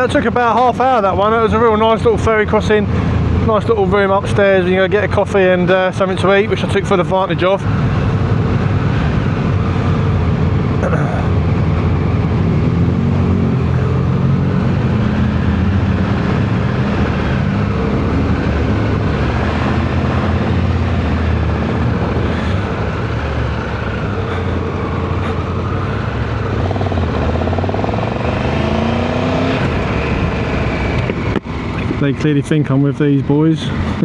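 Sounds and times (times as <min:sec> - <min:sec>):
rushing noise: 0:07.6 - 0:32.2
motorcycle engine running: 0:07.7 - 0:32.2.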